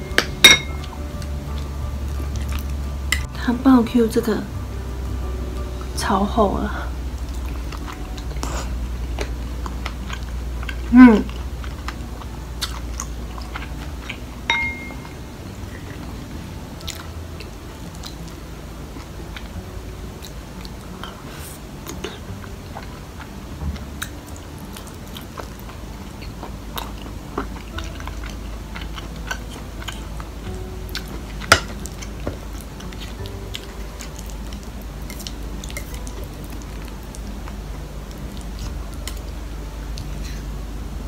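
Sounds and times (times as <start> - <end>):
chewing and wet mouth sounds: 0.1 - 3.3, 6.7 - 40.6.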